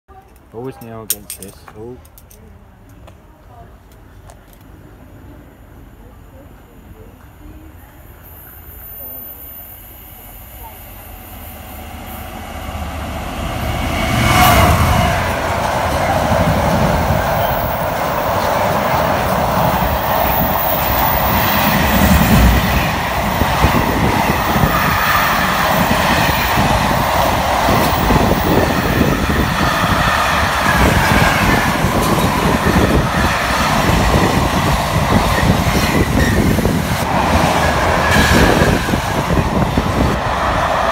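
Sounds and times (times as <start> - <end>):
freight wagons rumbling past: 11.4 - 40.9.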